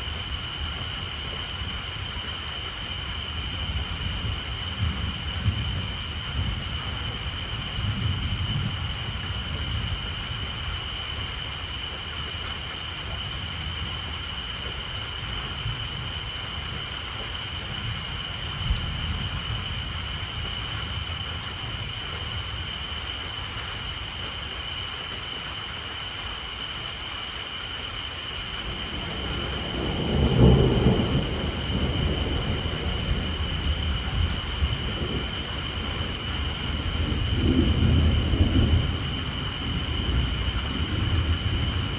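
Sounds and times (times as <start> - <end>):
rain on a tin roof: 0.0 - 41.9
tree frogs chorus: 0.0 - 41.9
low rolling thunder: 3.0 - 11.0, 28.6 - 41.9.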